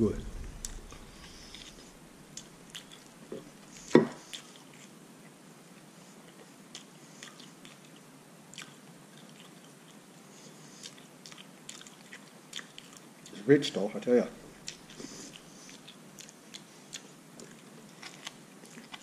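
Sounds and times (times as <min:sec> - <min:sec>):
mouth clicks while chewing: 0:06.3 - 0:10.0, 0:10.8 - 0:13.4, 0:14.6 - 0:19.0.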